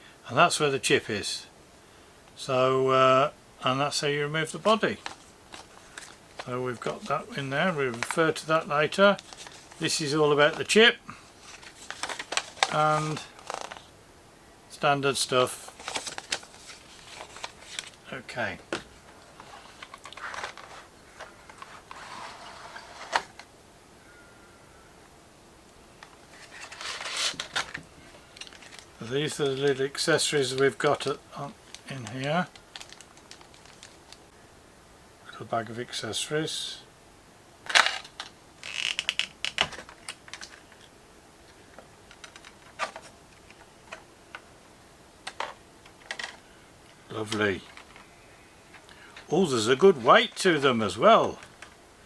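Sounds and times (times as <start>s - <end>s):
packaging clicks and rustle: 4.9s - 7.2s, 7.8s - 10.7s, 11.3s - 13.9s, 15.6s - 18.0s, 18.7s - 23.5s, 26.0s - 34.3s, 37.6s - 44.5s, 45.2s - 46.4s, 47.2s - 48.1s, 49.9s - 51.8s
plastic parts clicking: 26.0s - 28.9s, 32.5s - 34.2s, 37.6s - 40.9s, 41.5s - 44.4s, 45.2s - 46.4s, 47.2s - 48.1s.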